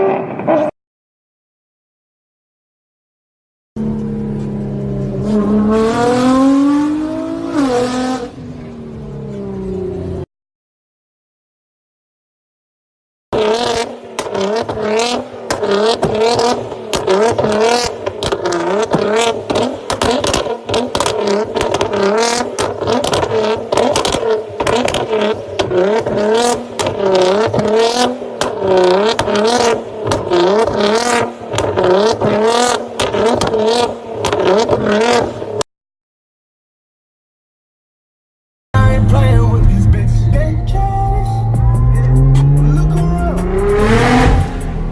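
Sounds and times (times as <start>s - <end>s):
car engine revving: 3.8s - 10.2s, 13.4s - 35.6s, 38.8s - 44.9s
exhaust cracks: 13.6s - 35.5s.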